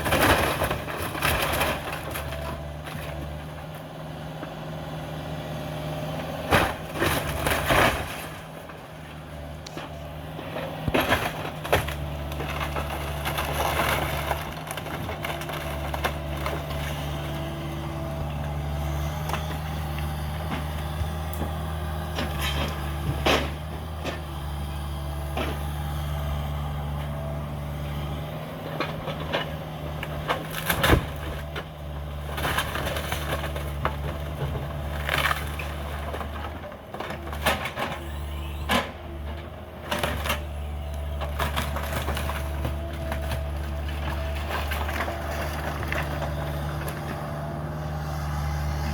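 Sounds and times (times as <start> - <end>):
excavator diesel engine running: 0.0 - 48.9
wood crunching and splintering: 0.0 - 48.9
sharp cracks and knocks: 10.6 - 27.7, 28.6 - 38.0, 41.1 - 47.4.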